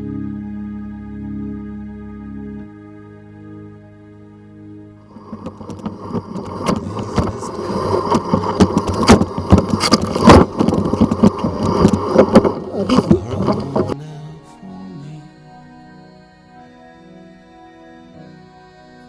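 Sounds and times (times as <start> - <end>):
mountain bike rattling over rough ground: 5.1 - 14.0.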